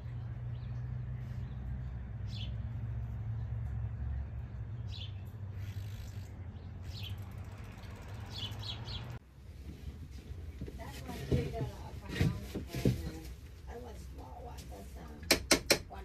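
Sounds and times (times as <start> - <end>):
small birds chirping: 0.0 - 9.2.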